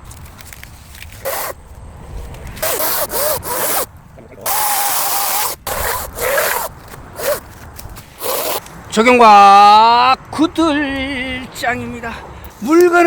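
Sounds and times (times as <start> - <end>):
chainsaw cutting wood: 1.2 - 1.6, 2.6 - 3.9, 4.5 - 7.5.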